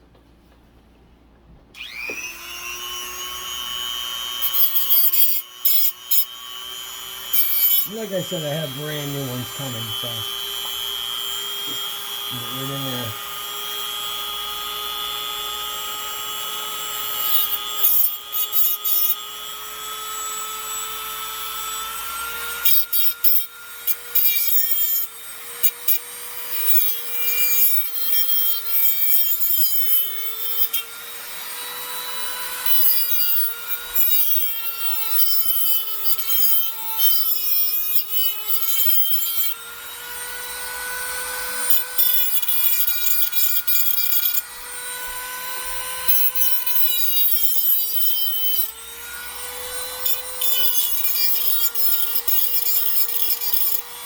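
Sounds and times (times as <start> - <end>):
rotary tool motor whine: 1.8 - 54.0
rasping grinding of metal: 2.8 - 13.2, 16.9 - 19.6, 20.2 - 54.0.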